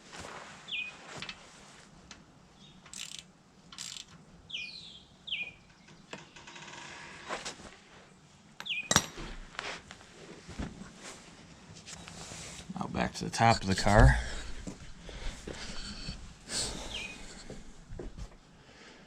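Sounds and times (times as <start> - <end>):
rapid ratchet clicking: 2.9 - 4.2.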